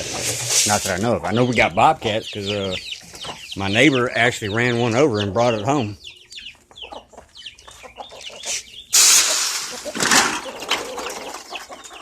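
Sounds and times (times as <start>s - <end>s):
chickens chirping: 0.0s - 12.0s
chickens clucking: 0.0s - 12.0s
loud rustling burst: 8.9s - 10.6s.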